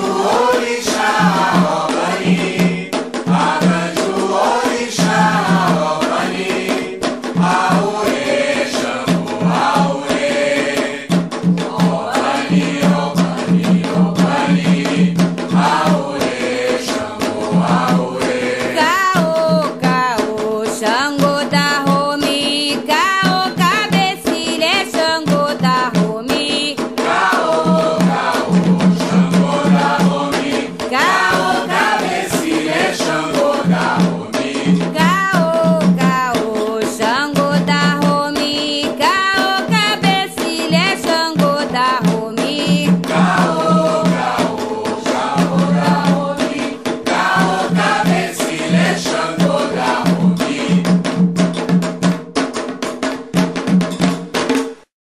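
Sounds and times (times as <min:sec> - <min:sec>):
voices chanting: 0:00.0 - 0:11.1, 0:11.7 - 0:20.0, 0:27.0 - 0:36.3, 0:42.5 - 0:50.8
rapid drum percussion: 0:00.0 - 0:54.9.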